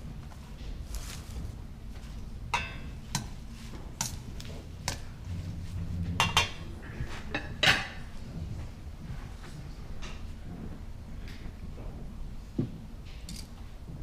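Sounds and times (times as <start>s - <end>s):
dishes and utensils clinking: 2.5s - 3.4s, 6.1s - 8.1s.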